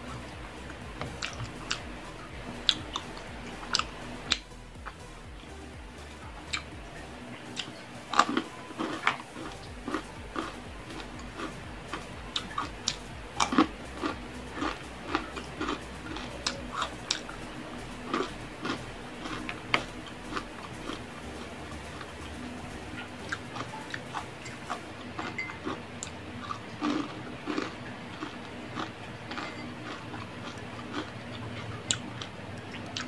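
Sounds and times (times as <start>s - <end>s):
person chewing crunchy food: 0.8s - 5.0s, 7.6s - 11.6s, 12.2s - 17.3s, 18.0s - 21.0s, 23.2s - 33.0s.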